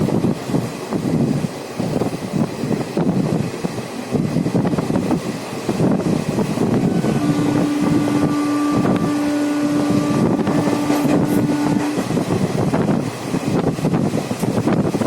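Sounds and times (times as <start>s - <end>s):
train rumbling with rattles: 0.0s - 15.0s
steady held tone: 6.4s - 12.9s.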